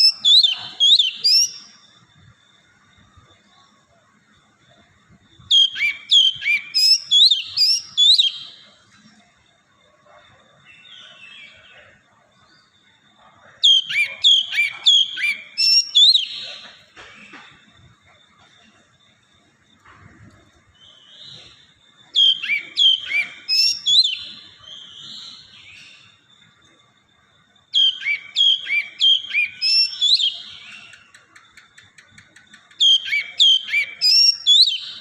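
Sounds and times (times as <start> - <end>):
bird whistled phrases: 0.0 - 1.6, 5.5 - 8.6, 13.6 - 16.6, 22.2 - 25.4, 27.8 - 30.5, 32.8 - 35.0.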